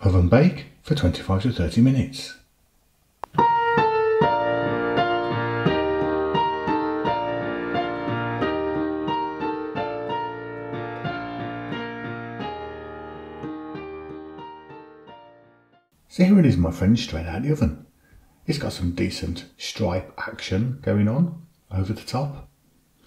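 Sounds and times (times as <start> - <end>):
jazz piano music: 3.3 - 15.9.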